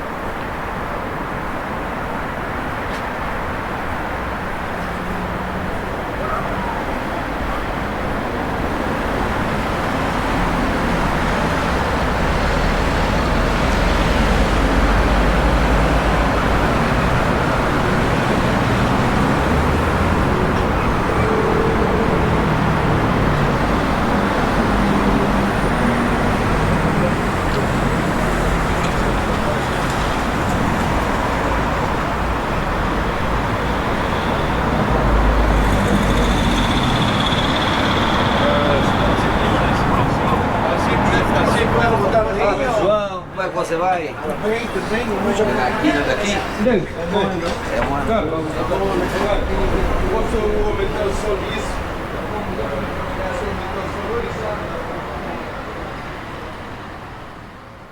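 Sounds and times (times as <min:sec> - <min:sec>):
road noise: 0:00.0 - 0:57.9
vehicle engine rumble: 0:03.1 - 0:57.9.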